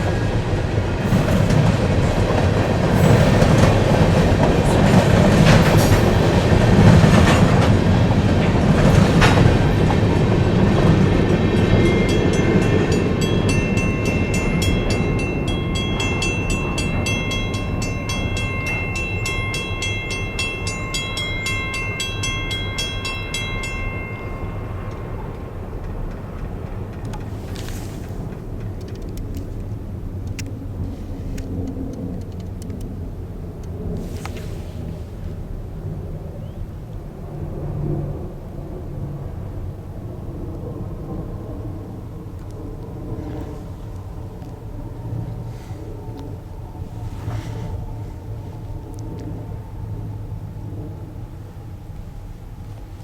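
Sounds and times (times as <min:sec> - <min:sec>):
freight train rumbling past: 0:00.0 - 0:53.0
wheel clicks over rail joints: 0:01.0 - 0:30.6
high-pitched ringing: 0:08.9 - 0:25.8.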